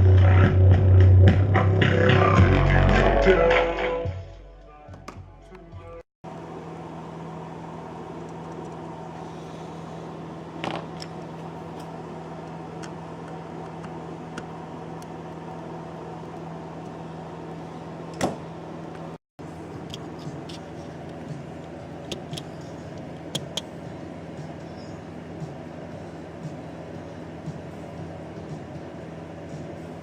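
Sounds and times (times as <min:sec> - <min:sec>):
music: 0:00.0 - 0:06.0, 0:19.9 - 0:30.0
electrical hum with hiss: 0:06.3 - 0:30.0.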